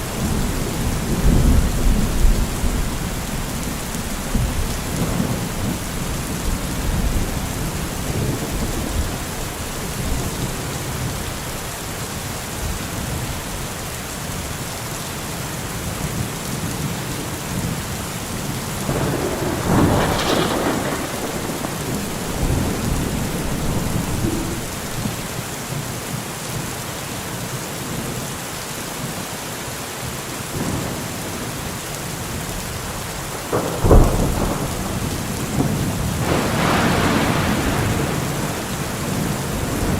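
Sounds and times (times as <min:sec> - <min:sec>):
thunder rumbling: 0:00.0 - 0:11.7, 0:17.6 - 0:25.8, 0:30.6 - 0:39.9
steady rain: 0:00.0 - 0:39.9
sharp thunder clap: 0:18.8 - 0:25.4, 0:33.5 - 0:39.9.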